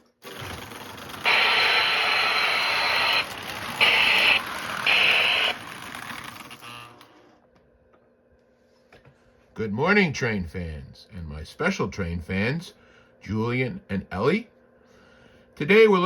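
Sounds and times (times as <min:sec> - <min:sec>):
toy locomotive running: 0:00.0 - 0:07.1
synthesized steam whistle: 0:01.3 - 0:05.6.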